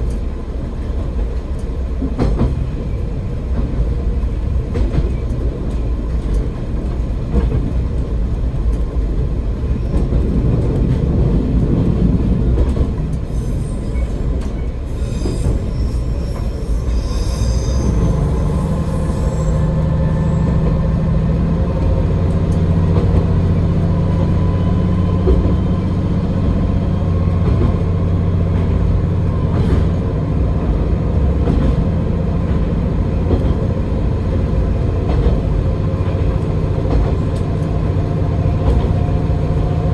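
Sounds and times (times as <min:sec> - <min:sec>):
rumble of wheels on rail: 0:00.0 - 0:39.9
wheels squealing on curve: 0:13.3 - 0:21.2.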